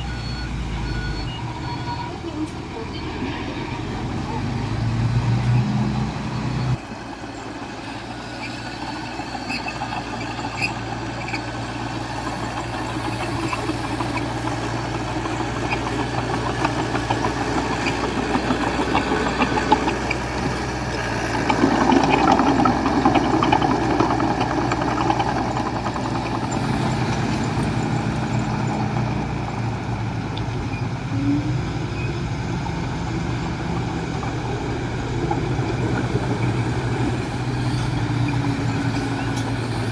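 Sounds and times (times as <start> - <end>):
diesel machinery engine running: 0.0 - 39.9.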